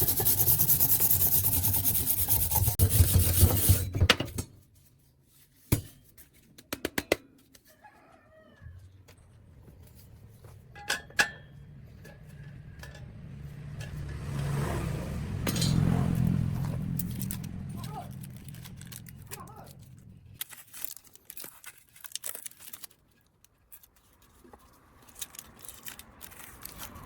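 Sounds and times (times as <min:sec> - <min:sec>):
low hum: 0:09.6 - 0:20.5
metallic clinks and knocks: 0:15.4 - 0:20.6.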